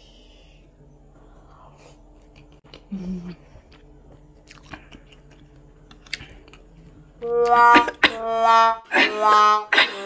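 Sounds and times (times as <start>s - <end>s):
person chewing noodles: 2.0s - 7.1s
person humming: 2.8s - 3.5s, 7.2s - 10.0s.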